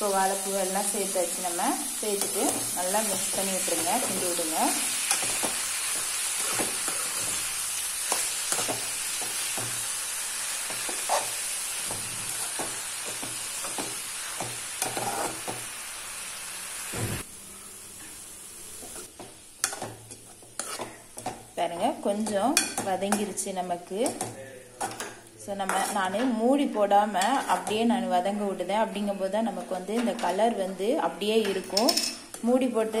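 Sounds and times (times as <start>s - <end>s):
vegetables sizzling in oil: 0.0s - 29.8s
metal spatula scraping pan: 10.7s - 12.7s, 18.9s - 21.0s, 24.8s - 26.3s.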